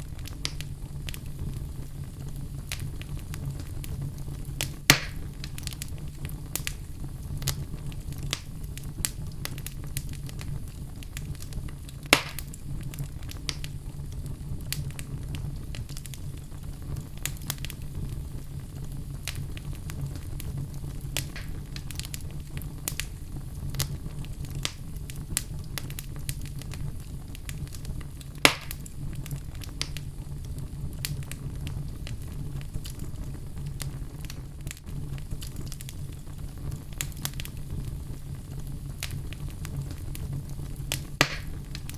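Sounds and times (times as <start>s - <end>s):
fire crackling in a fireplace: 0.0s - 41.9s
loud fire pops: 0.0s - 41.9s.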